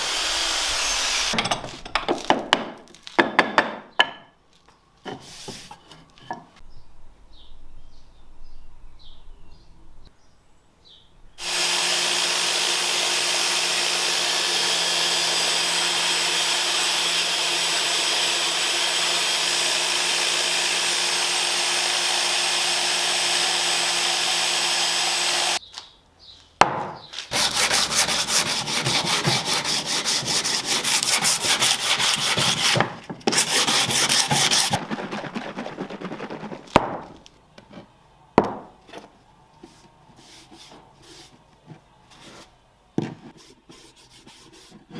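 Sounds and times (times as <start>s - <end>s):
power tool machining wood: 0.0s - 1.4s, 11.4s - 25.6s, 27.3s - 34.8s
rasping strokes on wood: 0.0s - 1.4s, 11.4s - 25.6s, 27.3s - 36.5s.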